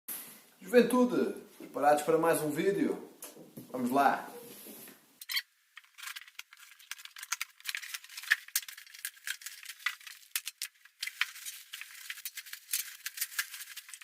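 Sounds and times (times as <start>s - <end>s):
packaging crinkling and rustling: 5.8s - 14.0s.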